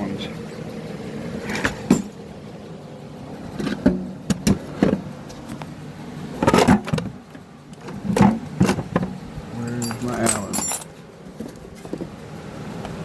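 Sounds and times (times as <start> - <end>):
metal hex keys clinking: 9.6 - 10.9.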